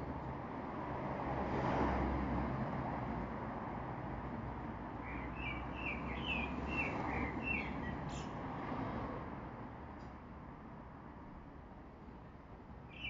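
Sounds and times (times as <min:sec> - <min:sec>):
bird chirping: 0:05.0 - 0:08.4.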